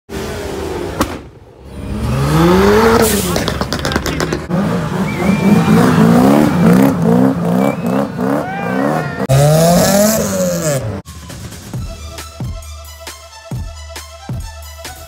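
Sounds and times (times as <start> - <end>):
car engines revving: 0.1 - 11.0.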